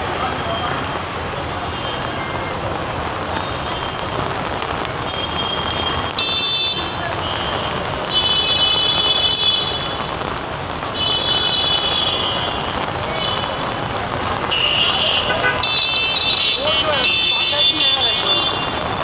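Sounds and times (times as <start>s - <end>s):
heavy rain: 0.0s - 19.0s
vehicle horns honking: 8.1s - 10.0s, 14.5s - 18.8s.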